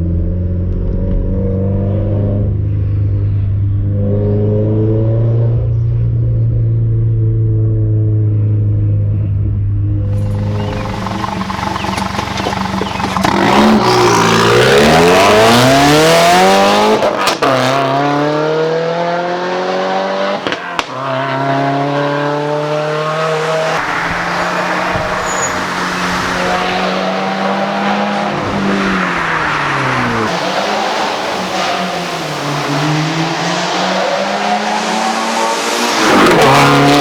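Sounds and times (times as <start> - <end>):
car engine and exhaust accelerating: 10.1 - 37.0.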